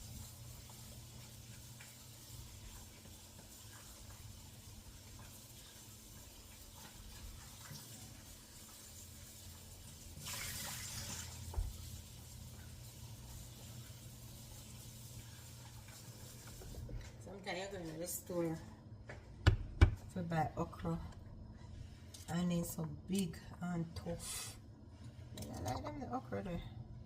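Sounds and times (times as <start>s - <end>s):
kitchen tap running: 0.0s - 17.4s.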